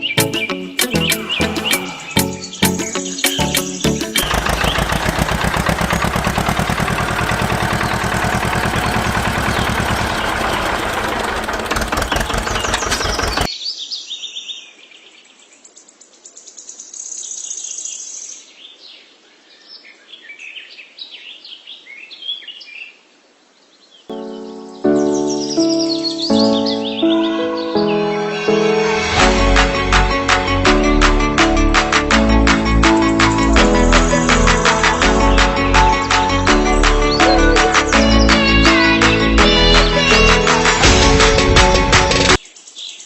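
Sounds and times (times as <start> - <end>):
birds chirping: 0.0 - 13.5, 23.9 - 28.1
small motor rattling: 4.2 - 13.5.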